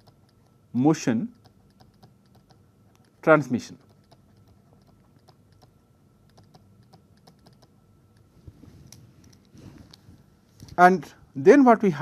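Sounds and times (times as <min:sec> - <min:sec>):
pen tapping while writing: 0:01.3 - 0:05.7.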